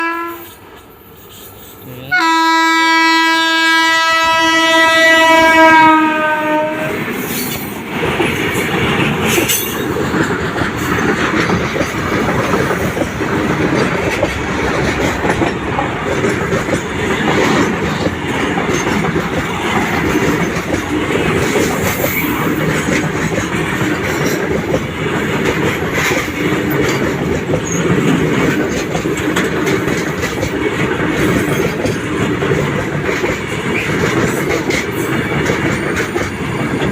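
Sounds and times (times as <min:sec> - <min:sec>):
train horn: 0:00.0 - 0:00.6, 0:02.1 - 0:07.0
train wheels clattering on rails: 0:03.8 - 0:36.9.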